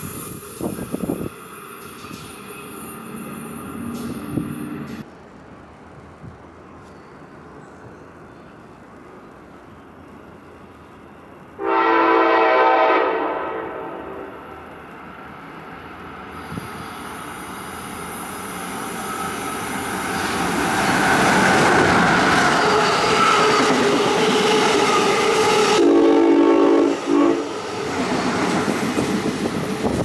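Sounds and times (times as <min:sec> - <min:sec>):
train rumble and wheel noise: 0:00.0 - 0:30.0
train horn blast: 0:11.6 - 0:14.6, 0:25.7 - 0:27.6.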